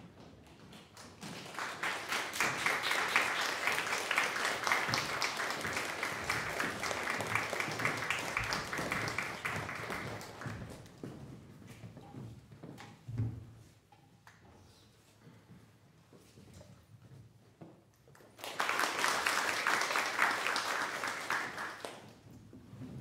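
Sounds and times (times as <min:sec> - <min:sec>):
audience applauding: 0:01.2 - 0:10.8, 0:18.3 - 0:22.1.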